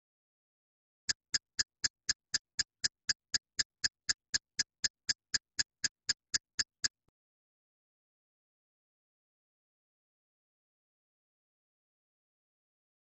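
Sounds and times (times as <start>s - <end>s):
short repeating ticks: 1.1s - 7.1s.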